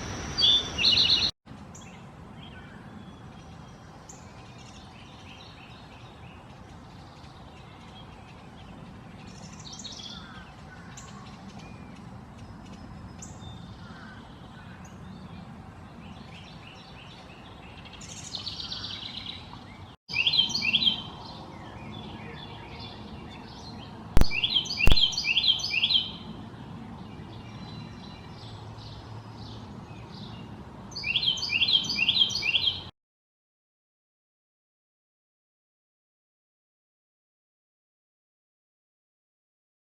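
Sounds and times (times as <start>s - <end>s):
bird singing quick repeated notes: 0.0s - 2.0s, 24.2s - 26.2s
songbirds calling: 0.0s - 32.9s
sharp clicks: 24.2s - 25.2s.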